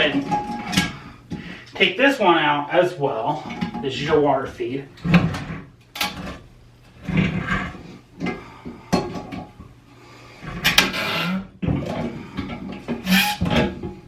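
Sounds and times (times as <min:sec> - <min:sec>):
plastic creaking and scraping: 0:05.0 - 0:08.4, 0:10.4 - 0:13.9.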